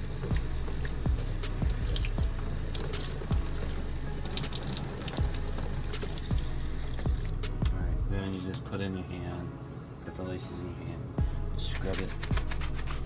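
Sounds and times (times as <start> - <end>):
water running from tap: 0.0 - 7.4
background music with steady beat: 0.0 - 13.0.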